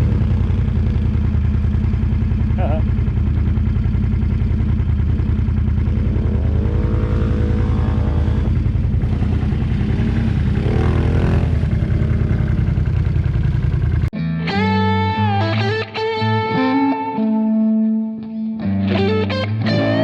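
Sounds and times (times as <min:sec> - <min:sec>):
atv engine revving: 0:00.0 - 0:14.1.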